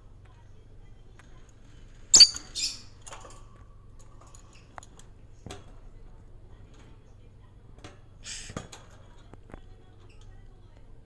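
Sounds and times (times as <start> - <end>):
pet bird chirping: 2.1 - 3.0.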